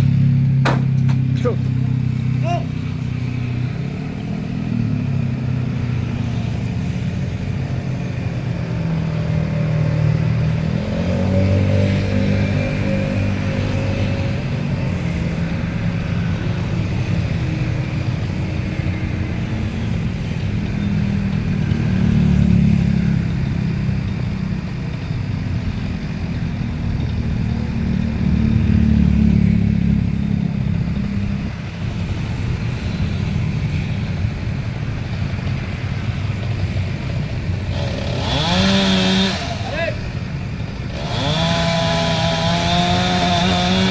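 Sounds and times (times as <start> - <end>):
chainsaw revving: 21.7 - 29.6, 36.3 - 43.9.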